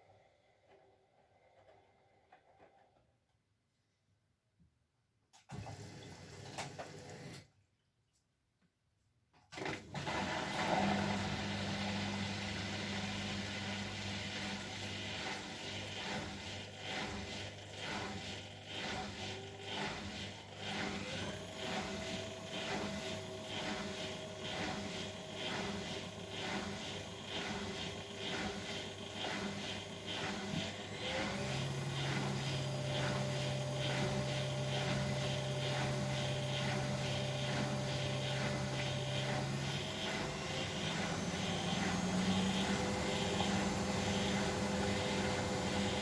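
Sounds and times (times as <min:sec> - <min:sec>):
washing machine drum whooshing: 0:15.2 - 0:46.0
motor hum: 0:20.5 - 0:46.0.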